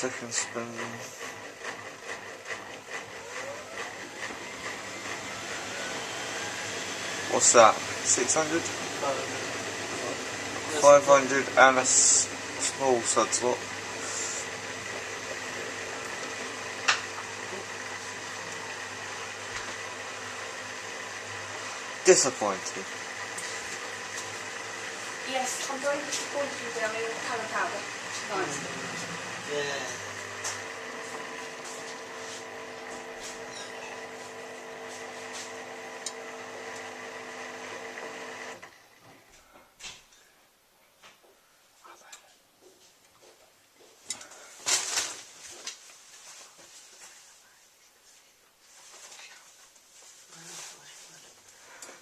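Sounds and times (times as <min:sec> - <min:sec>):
washing machine spinning: 0:00.0 - 0:39.1.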